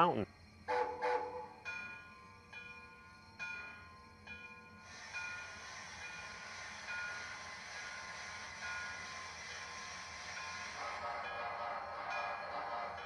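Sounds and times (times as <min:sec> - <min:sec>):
locomotive bell ringing: 0:01.4 - 0:13.0
steady hiss: 0:04.7 - 0:11.2.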